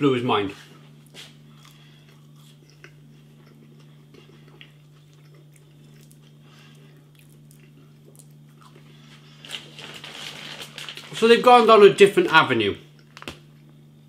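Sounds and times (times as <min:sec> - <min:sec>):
low electrical hum: 0:00.0 - 0:14.0
faint chewing: 0:01.0 - 0:09.8.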